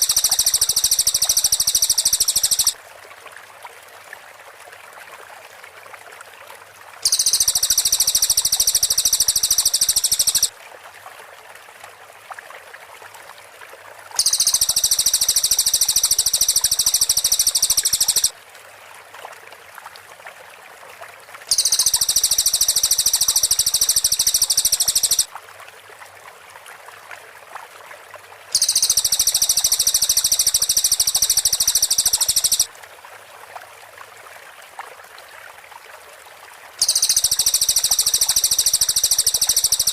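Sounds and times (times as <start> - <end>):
background hiss: 0.0 - 2.8, 7.0 - 10.5, 14.2 - 18.3, 21.5 - 25.3, 28.6 - 32.7, 36.8 - 39.9
bird song rapid high notes: 0.0 - 2.8, 7.0 - 10.5, 14.2 - 18.3, 21.5 - 25.3, 28.6 - 32.7, 36.8 - 39.9.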